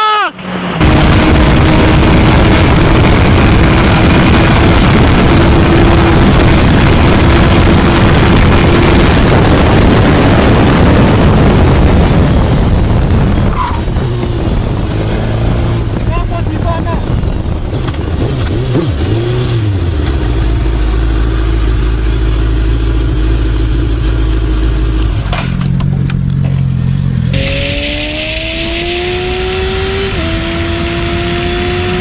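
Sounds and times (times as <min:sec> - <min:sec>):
wind and road noise: 0:00.0 - 0:32.0
faint motorcycle engine: 0:13.6 - 0:32.0.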